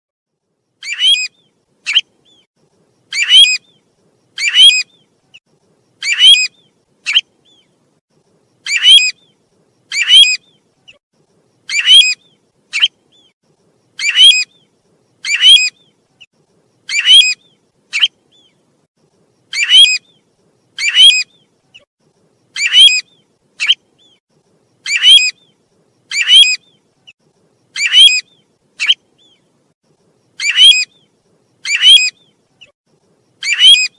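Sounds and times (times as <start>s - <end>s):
recorded bird call whistles: 0.8s - 2.5s, 3.1s - 3.8s, 4.4s - 5.1s, 6.0s - 7.7s, 8.6s - 11.0s, 11.7s - 13.3s, 14.0s - 16.0s, 16.9s - 18.6s, 19.5s - 20.2s, 20.8s - 21.9s, 22.6s - 24.2s, 24.8s - 26.8s, 27.7s - 29.5s, 30.4s - 32.7s, 33.4s - 33.9s.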